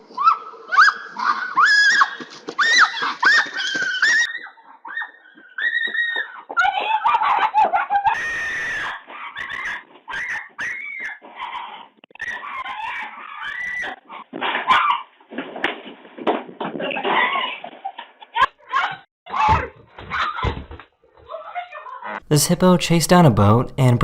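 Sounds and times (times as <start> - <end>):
raccoons screeching: 0.2 - 15.1.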